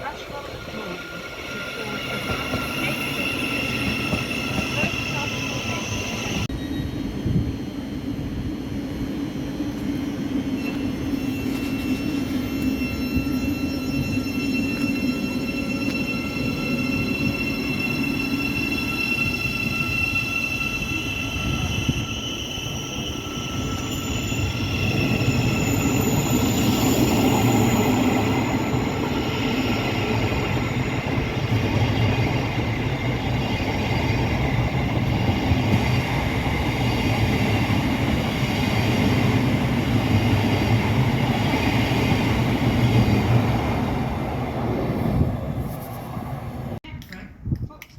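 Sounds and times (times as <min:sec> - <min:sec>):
electric train running: 0:00.0 - 0:44.8.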